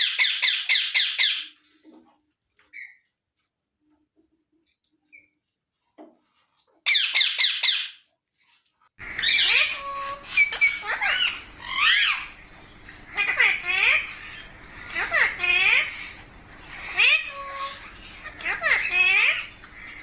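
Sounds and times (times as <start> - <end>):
parakeets squawking: 0.0 - 1.5, 6.8 - 8.0, 9.0 - 20.0.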